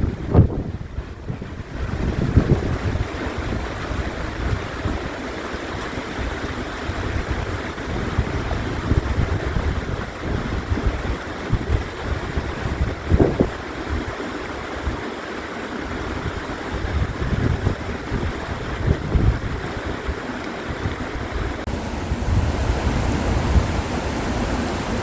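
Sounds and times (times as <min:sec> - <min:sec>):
wind gusting across microphone: 0:00.0 - 0:15.1, 0:15.7 - 0:25.0.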